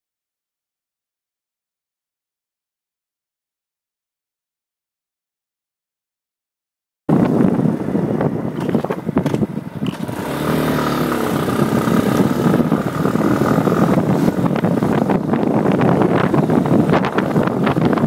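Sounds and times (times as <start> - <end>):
motorcycle engine running: 7.2 - 18.0.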